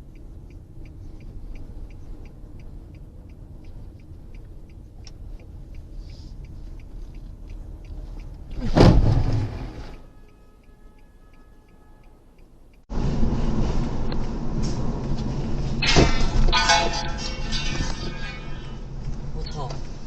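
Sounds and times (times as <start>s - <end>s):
faint regular ticking: 0.0s - 8.7s, 9.9s - 12.9s
car engine and road rumble: 0.0s - 20.0s.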